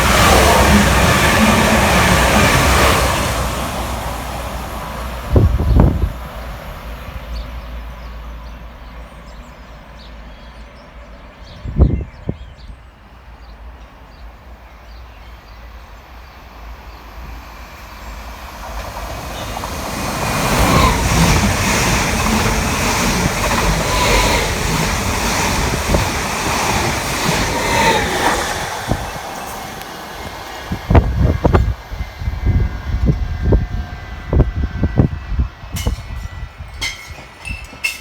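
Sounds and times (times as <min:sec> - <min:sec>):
train wheel clatter: 0:00.0 - 0:05.9, 0:18.0 - 0:31.8, 0:35.7 - 0:38.0
train passing: 0:00.0 - 0:11.5, 0:12.8 - 0:38.0.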